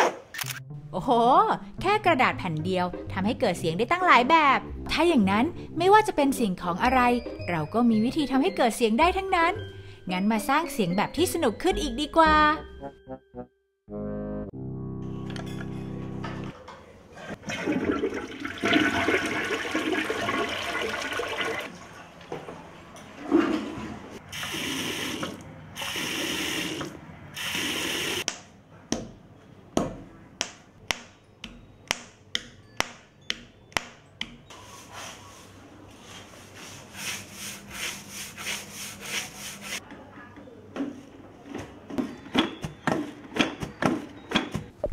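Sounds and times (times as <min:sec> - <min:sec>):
toilet flushing: 0:17.2 - 0:22.2, 0:23.1 - 0:28.2
water running in bursts: 0:17.5 - 0:21.7.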